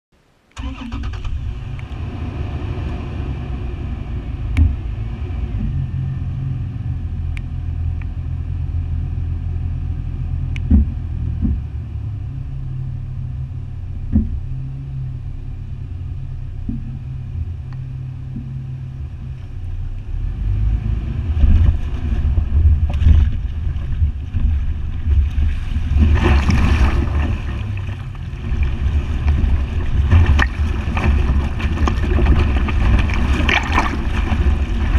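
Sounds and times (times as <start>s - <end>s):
car engine rumbling: 0.2s - 34.9s
water splashing around vehicle: 12.9s - 34.9s.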